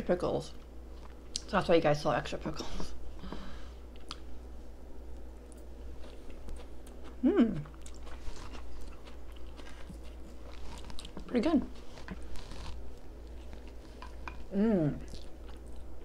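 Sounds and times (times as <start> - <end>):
person chewing food: 5.1 - 16.0
person humming mm: 7.2 - 7.7, 14.5 - 15.1.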